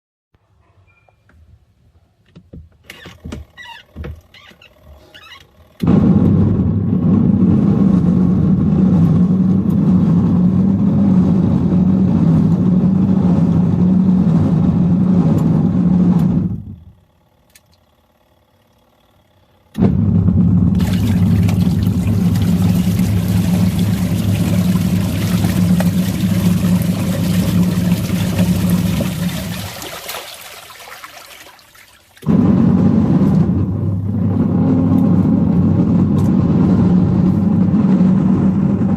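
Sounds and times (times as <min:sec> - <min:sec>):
washing machine motor hum: 0:02.4 - 0:38.9.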